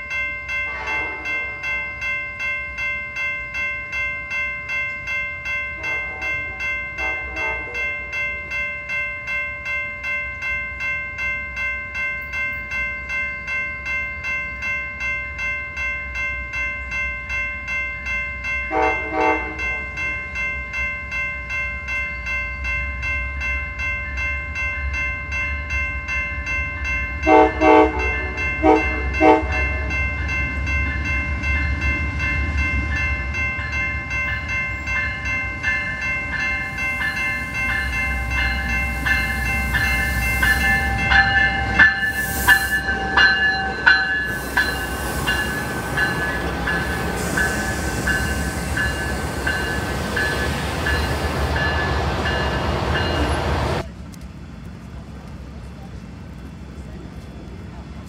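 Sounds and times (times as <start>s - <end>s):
train bell ringing: 0.0s - 53.9s
train horn blasts: 0.6s - 1.6s, 5.8s - 8.0s, 18.7s - 19.8s, 27.2s - 30.0s.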